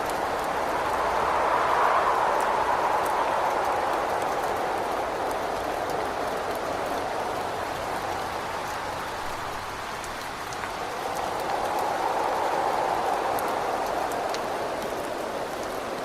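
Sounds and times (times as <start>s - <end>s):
gusting wind: 0.0s - 16.0s
rain against a window: 0.0s - 16.0s.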